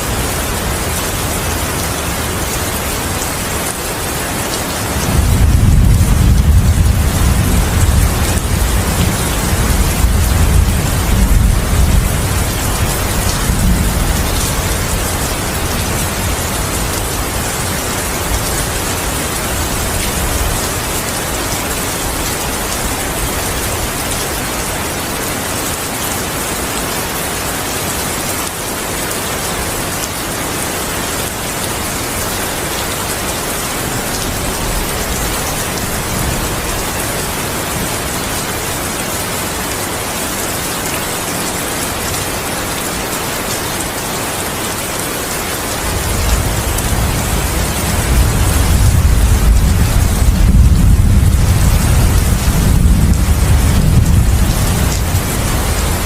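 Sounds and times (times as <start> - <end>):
heavy rain falling: 0.0 - 56.0
thunder rumble: 5.0 - 17.7, 46.0 - 56.0.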